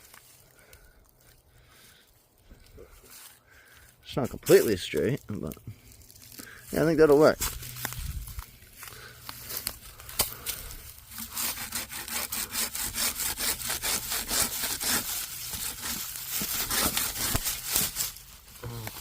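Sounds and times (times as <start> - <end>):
hand saw cutting wood: 10.3 - 18.2.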